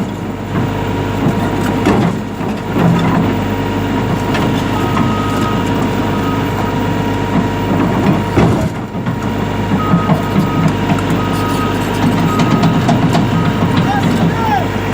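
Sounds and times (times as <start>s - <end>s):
excavator running under load: 0.0s - 14.9s
high-pitched warning beeps: 9.8s - 14.9s.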